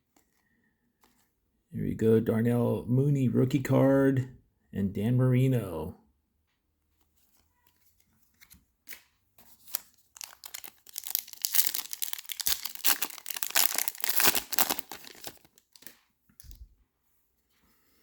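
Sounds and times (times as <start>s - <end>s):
wrapper tearing and crinkling: 9.6s - 16.5s.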